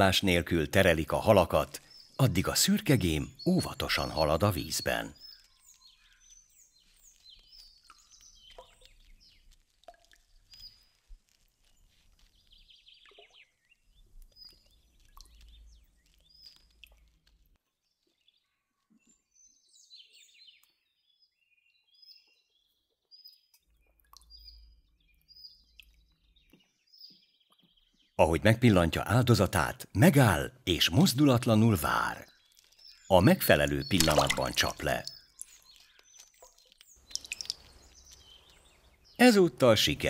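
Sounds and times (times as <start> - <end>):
birds chirping and calling: 0.0 - 9.4, 24.2 - 40.0.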